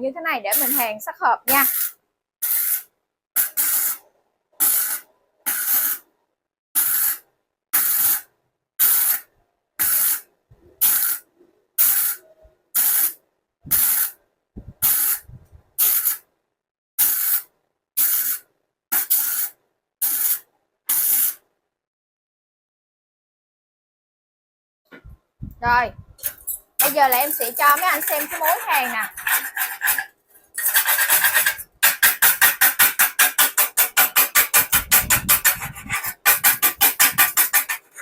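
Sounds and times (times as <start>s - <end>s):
welder arc hissing: 1.6s - 2.8s, 12.8s - 14.2s, 15.8s - 16.2s.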